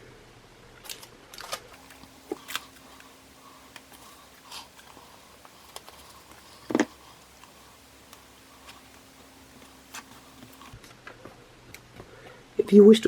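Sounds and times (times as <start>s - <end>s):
paper rustling: 1.8s - 10.8s.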